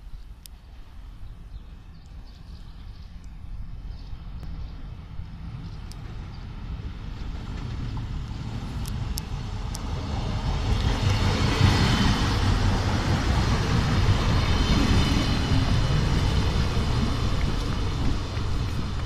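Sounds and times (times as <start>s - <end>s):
passenger train passing: 0.4s - 19.0s
wheels on rails: 7.2s - 19.0s.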